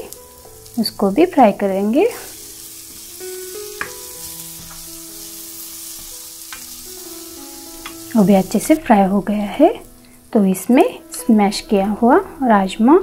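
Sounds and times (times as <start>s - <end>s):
food sizzling in a frying pan: 0.0s - 13.0s
spatula tapping pan: 3.7s - 4.9s, 6.0s - 6.8s, 7.8s - 8.2s.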